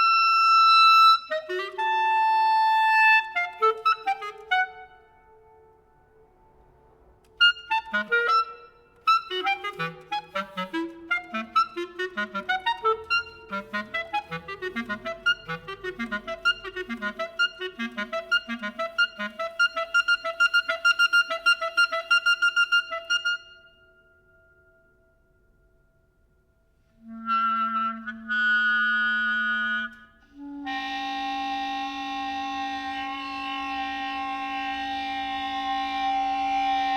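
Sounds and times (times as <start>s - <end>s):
chamber ensemble playing: 7.4s - 22.0s.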